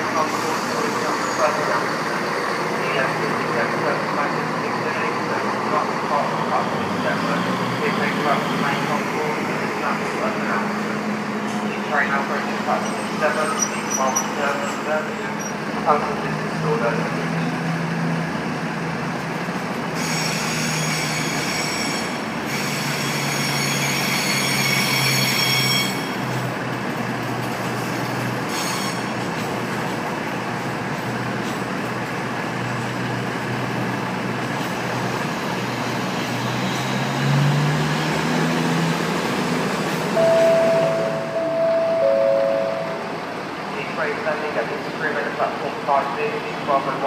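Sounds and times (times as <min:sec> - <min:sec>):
train wheels squealing: 0:00.2 - 0:01.8, 0:12.7 - 0:15.6, 0:19.9 - 0:26.4, 0:28.5 - 0:29.5
low engine drone: 0:40.1 - 0:44.7
two-note chime: 0:40.2 - 0:43.1.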